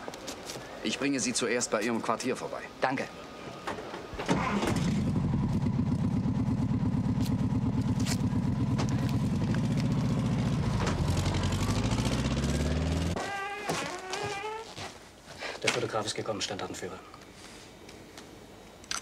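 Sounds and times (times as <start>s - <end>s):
vehicle engine running: 4.8s - 13.2s.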